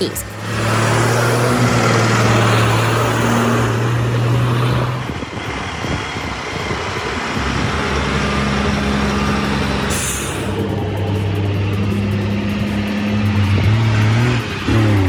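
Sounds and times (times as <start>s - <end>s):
heavy truck engine humming: 0.0s - 15.0s.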